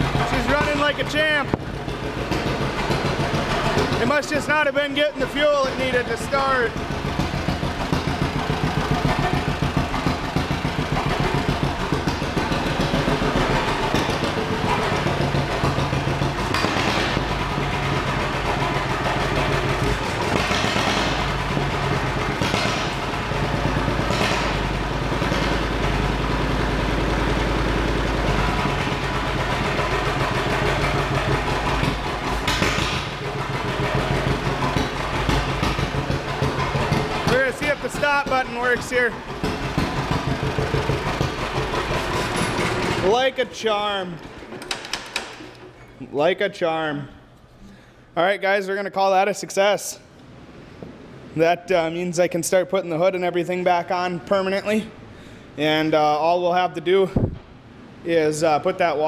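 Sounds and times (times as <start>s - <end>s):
tractor engine putt-putt: 0.0s - 46.0s.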